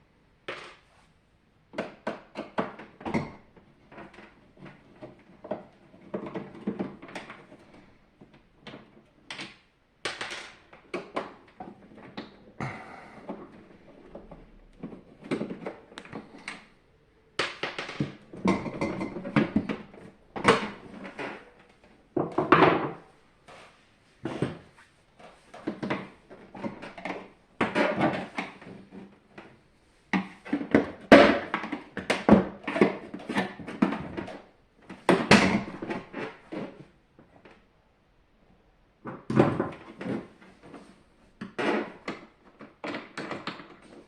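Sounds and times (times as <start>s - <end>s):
tools clattering on plastic casing: 1.7s - 16.7s, 17.4s - 23.0s, 25.5s - 29.5s.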